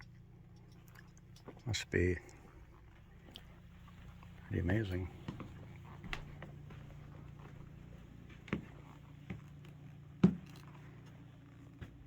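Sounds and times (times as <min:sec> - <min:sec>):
low room tone hum: 0:00.0 - 0:12.0.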